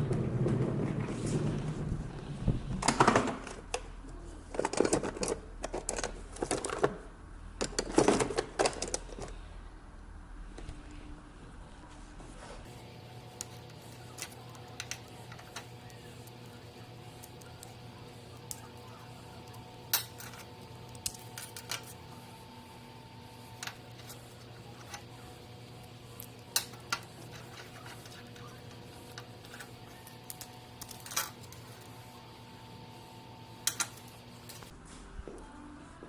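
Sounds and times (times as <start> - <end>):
steady machine hum: 9.3 - 36.0.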